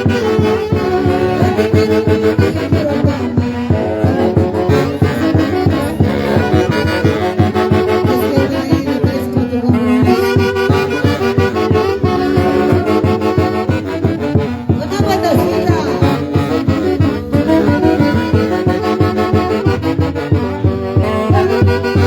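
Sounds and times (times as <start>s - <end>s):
live band playing dance tune: 0.0s - 22.0s.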